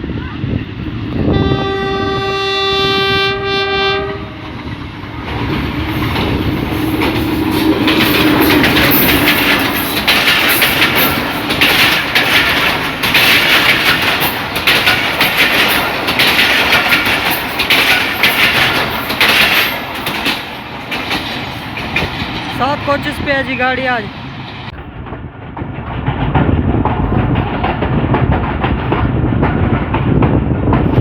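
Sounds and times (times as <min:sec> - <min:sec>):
locomotive horn blast: 0:01.3 - 0:04.4
train wheel clatter over rail joints: 0:04.4 - 0:23.0, 0:24.3 - 0:31.0.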